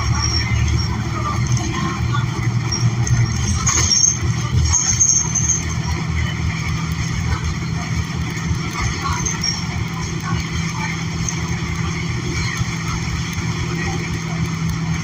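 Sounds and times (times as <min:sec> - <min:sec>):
high squeal: 0:00.0 - 0:01.2, 0:02.6 - 0:06.1
bus engine rumble: 0:00.0 - 0:15.0.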